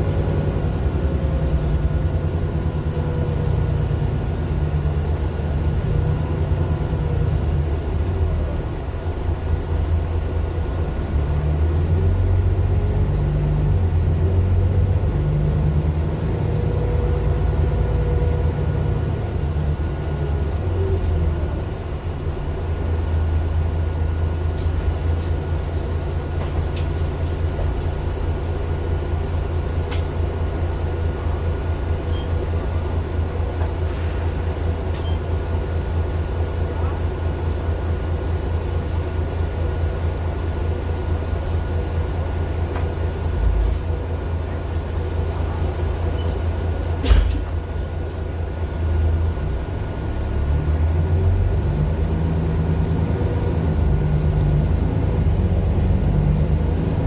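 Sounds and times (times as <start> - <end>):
bus diesel engine rumbling: 0.0 - 57.0.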